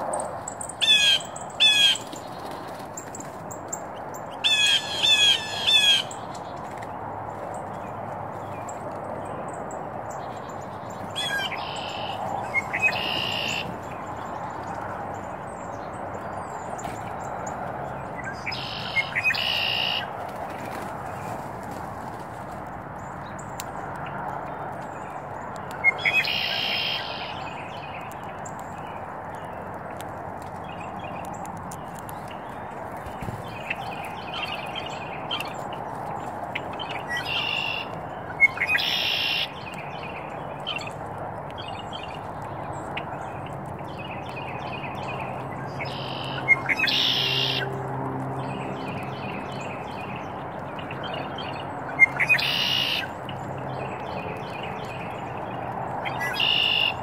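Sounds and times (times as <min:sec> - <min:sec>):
harsh bird calls: 0:00.0 - 0:03.3, 0:04.1 - 0:06.9, 0:10.3 - 0:21.8, 0:25.8 - 0:29.4, 0:31.9 - 0:41.0, 0:42.8 - 0:47.8, 0:48.6 - 0:57.0.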